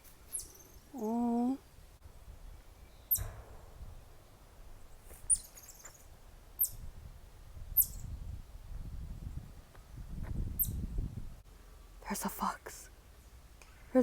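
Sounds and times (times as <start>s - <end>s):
bird chirping: 0.2s - 1.6s, 2.7s - 3.4s, 4.8s - 6.9s, 7.7s - 8.4s.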